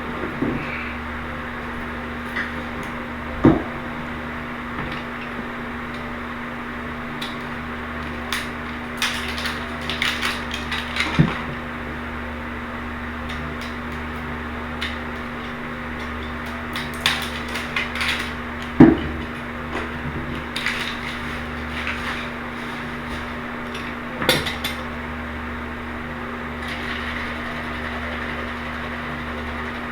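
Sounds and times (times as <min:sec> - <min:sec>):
hard objects clicking and knocking: 0:07.2 - 0:11.6, 0:16.0 - 0:24.9.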